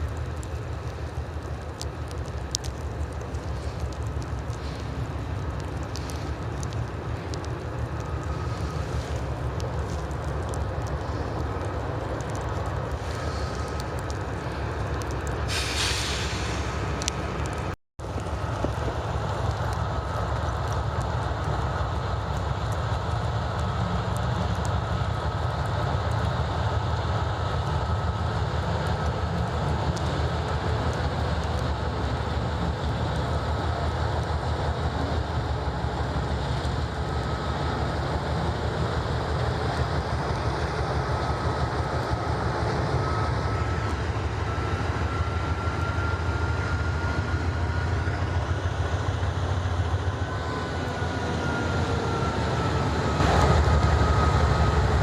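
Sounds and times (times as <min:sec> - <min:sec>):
train rumbling on track: 0:00.0 - 0:55.0.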